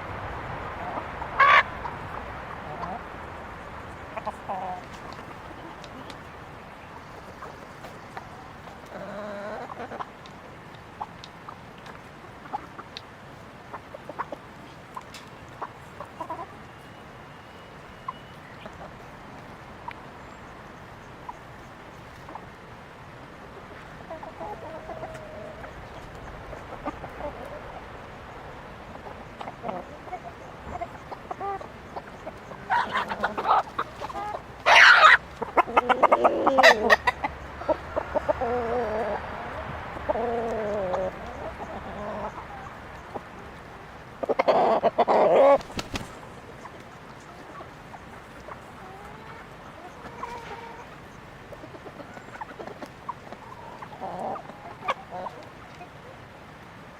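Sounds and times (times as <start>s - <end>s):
chickens clucking: 0.0s - 56.9s
loud harsh chicken call: 0.8s - 1.9s, 32.7s - 37.8s.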